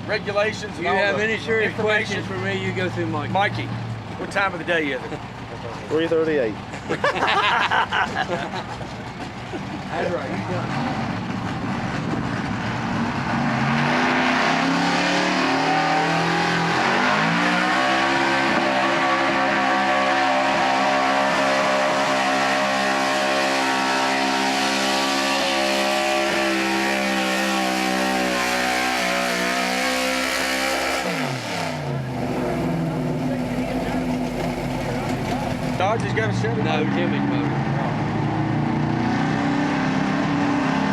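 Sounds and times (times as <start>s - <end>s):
truck engine revving: 0.0s - 40.9s.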